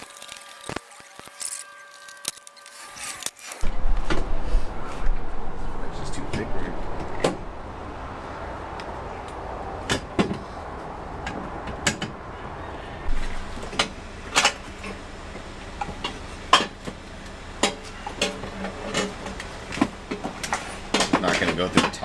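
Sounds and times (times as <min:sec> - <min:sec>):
metal tubes clunking and knocking: 0:13.1 - 0:22.0.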